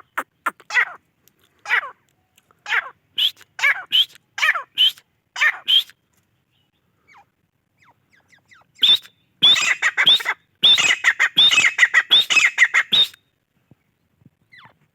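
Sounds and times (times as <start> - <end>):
francolin calling: 7.0 - 13.2.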